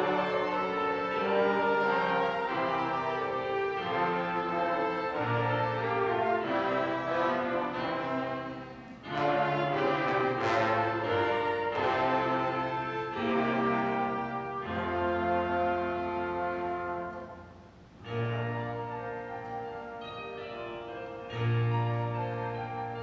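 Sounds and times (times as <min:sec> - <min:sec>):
bowed strings and brass chords: 0:00.0 - 0:23.0.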